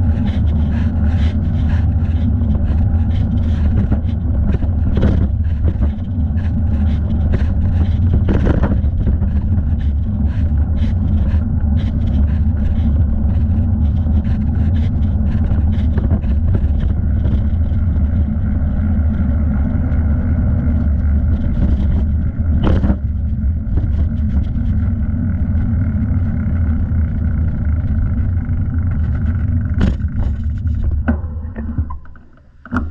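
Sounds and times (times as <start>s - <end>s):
wind buffeting microphone: 0.0s - 32.1s
tyre and road noise: 0.0s - 32.9s
sharp knocks from bicycle: 21.6s - 24.5s, 29.1s - 32.9s.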